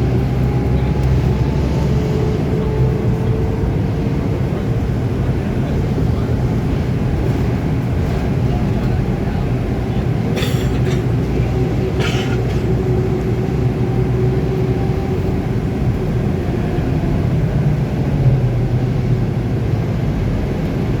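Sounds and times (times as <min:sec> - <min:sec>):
bus engine rumble: 0:00.0 - 0:21.0.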